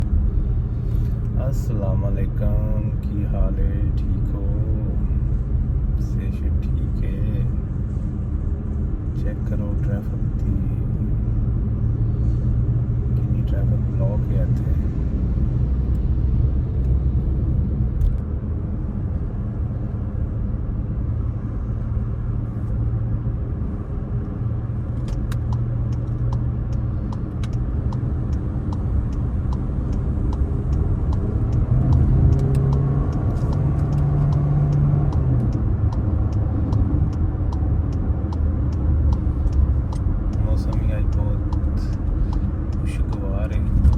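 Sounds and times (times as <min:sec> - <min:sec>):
vehicle engine running low: 0:00.0 - 0:43.9
light regular ticking: 0:25.0 - 0:43.9.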